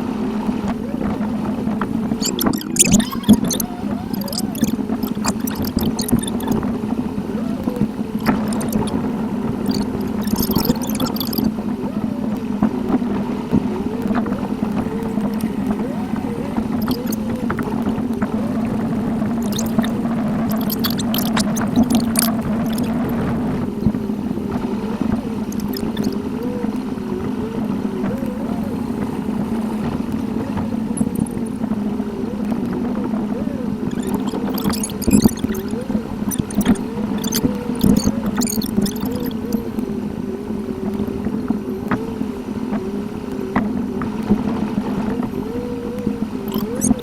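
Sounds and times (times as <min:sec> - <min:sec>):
sped-up car driving drone: 0:00.0 - 0:47.0
fast wavering gurgling warble: 0:00.7 - 0:39.8, 0:46.4 - 0:47.0.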